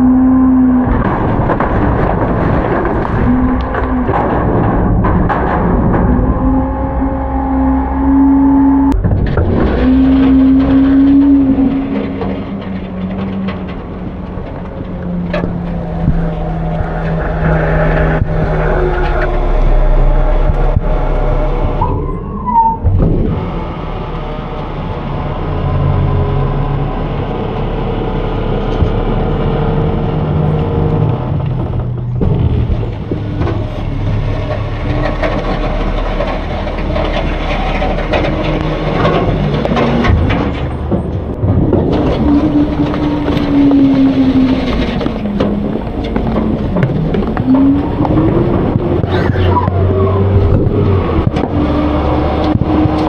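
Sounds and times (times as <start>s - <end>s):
garbage truck engine running: 0.0s - 53.0s
metallic clanks and rattles: 0.8s - 7.2s, 9.0s - 22.2s, 31.3s - 53.0s.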